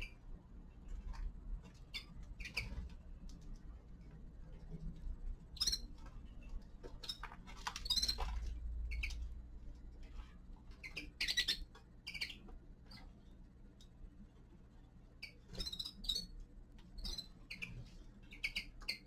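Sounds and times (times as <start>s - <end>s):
steady low hum: 0.0s - 19.0s
finches chirping: 1.8s - 3.0s, 5.5s - 6.0s, 6.9s - 9.4s, 10.7s - 13.4s, 15.1s - 19.0s.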